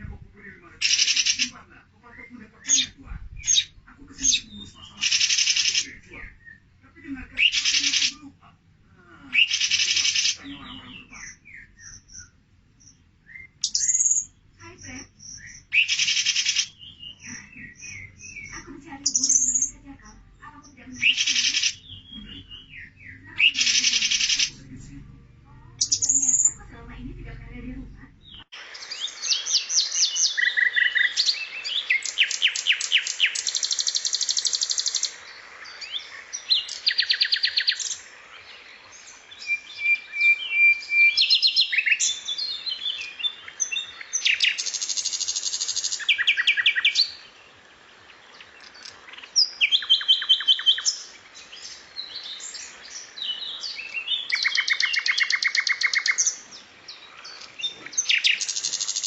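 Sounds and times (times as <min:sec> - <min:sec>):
songbird chirping trills: 0:00.0 - 0:59.0
bird whistles: 0:13.3 - 0:14.3.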